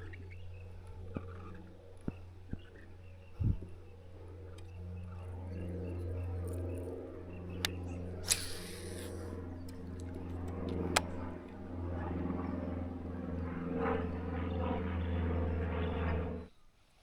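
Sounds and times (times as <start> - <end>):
motor humming: 0.0 - 16.5
sharp click: 7.6 - 9.1, 10.9 - 11.1.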